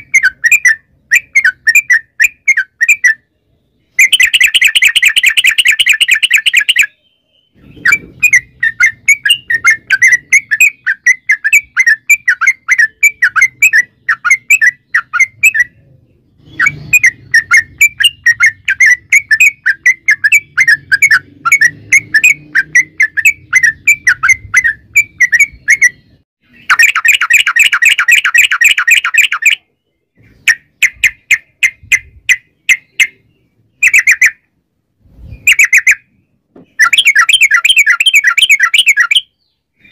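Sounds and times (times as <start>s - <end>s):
bird singing chattering notes: 0.0s - 34.6s, 35.4s - 39.9s
buzzing bird trill: 16.4s - 26.0s.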